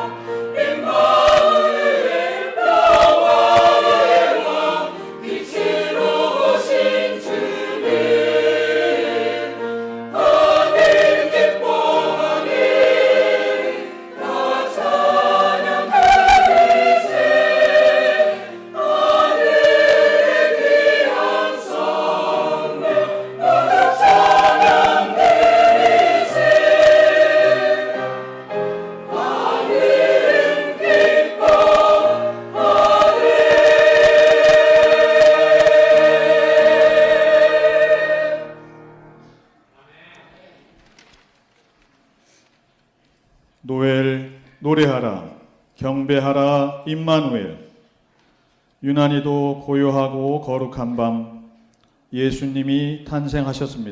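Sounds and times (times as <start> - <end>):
church choir singing: 0.0 - 39.5
choir accompaniment: 0.0 - 39.8.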